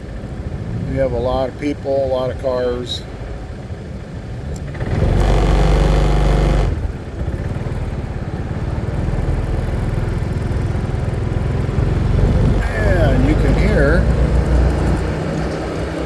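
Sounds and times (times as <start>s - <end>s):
road and wind noise: 0.0s - 16.0s
scooter engine running: 4.6s - 16.0s.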